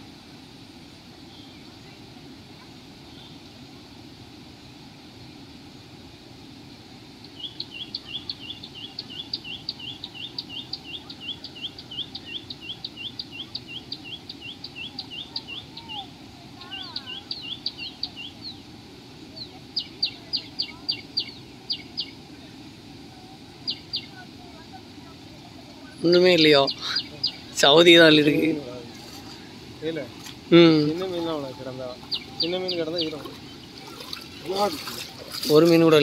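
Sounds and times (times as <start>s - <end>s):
steady low hiss: 0.0s - 36.0s
bird chirping: 7.2s - 16.0s, 16.6s - 18.7s, 19.4s - 22.2s, 23.6s - 24.2s, 25.8s - 29.4s, 30.1s - 36.0s.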